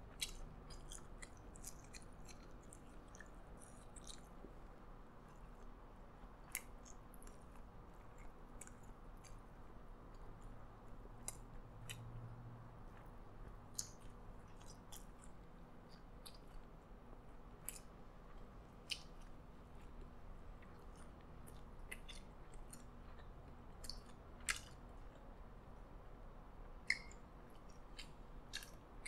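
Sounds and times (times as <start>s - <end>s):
person chewing food: 0.0s - 29.0s
mouth clicks and smacks: 11.2s - 12.2s, 12.9s - 16.7s, 17.6s - 25.3s, 26.8s - 29.0s.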